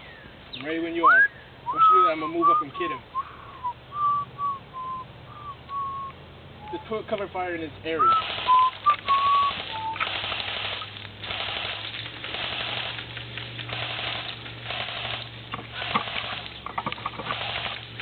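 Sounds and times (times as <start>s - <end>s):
airsoft guns firing bursts: 8.1s - 16.6s, 17.2s - 18.0s.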